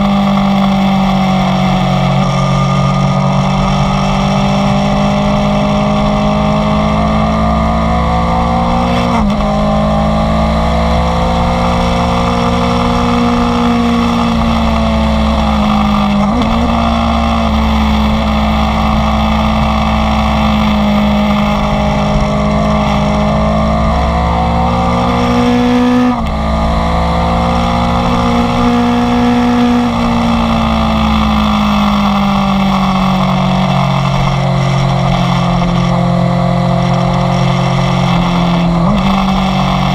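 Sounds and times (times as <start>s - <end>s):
sport motorcycle engine revving: 0.0s - 39.9s.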